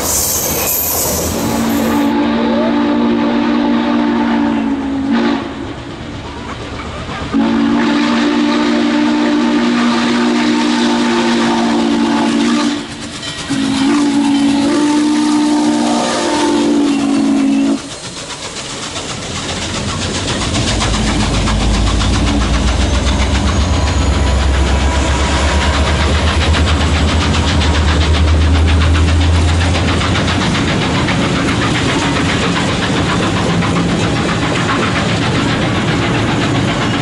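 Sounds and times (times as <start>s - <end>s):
steam whistle chord: 0.0s - 5.6s, 7.4s - 12.9s, 13.5s - 17.9s
diesel locomotive engine droning: 0.0s - 37.0s
wheels clicking on rail: 12.3s - 37.0s.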